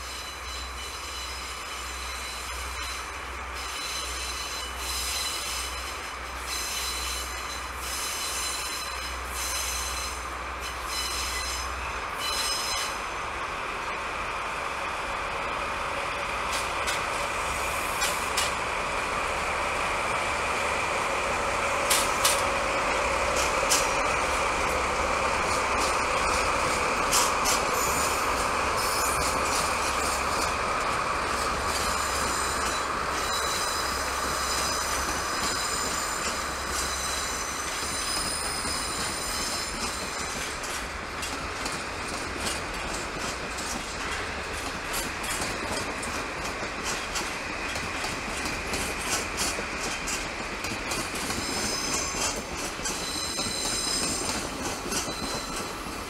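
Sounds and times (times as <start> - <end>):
high flange squeals: 0.0 - 13.1, 22.1 - 40.5, 51.2 - 56.0
train wheels on rail: 0.0 - 56.0.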